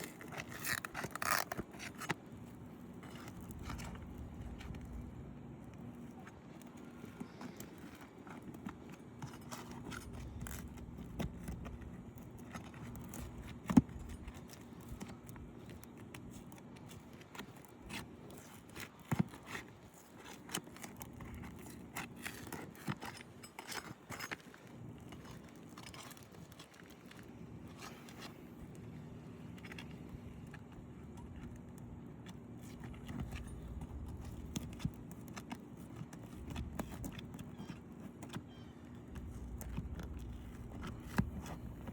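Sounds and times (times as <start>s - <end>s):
metal tool scraping shingles: 21.6s - 24.6s.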